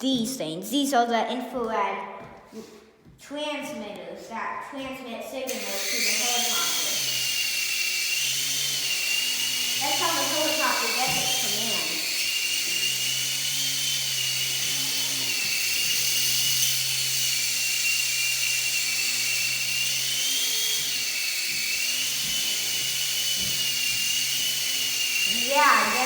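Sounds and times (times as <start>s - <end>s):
toy helicopter rotor whine: 5.4s - 26.0s.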